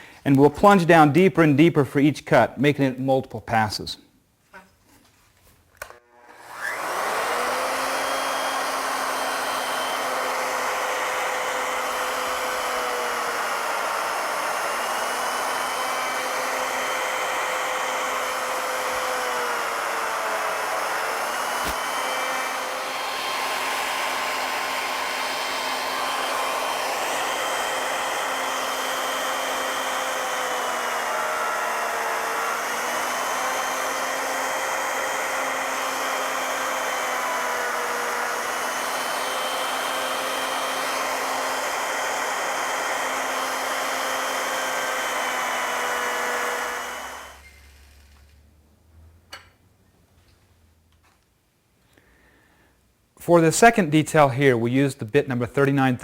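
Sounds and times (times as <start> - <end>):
click: 5.8 - 6.0
router motor milling wood: 5.8 - 48.2.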